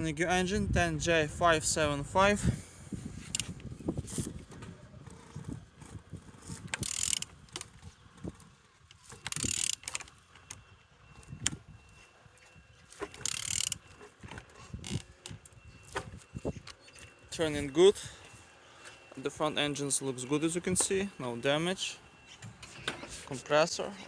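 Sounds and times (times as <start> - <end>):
ratchet clicks: 3.2 - 3.5, 6.7 - 7.7, 9.1 - 10.6, 13.2 - 13.8, 14.8 - 15.1.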